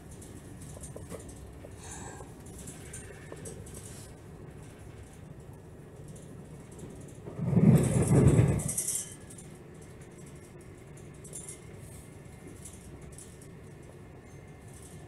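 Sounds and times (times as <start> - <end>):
train interior rumble: 0.0 - 15.0.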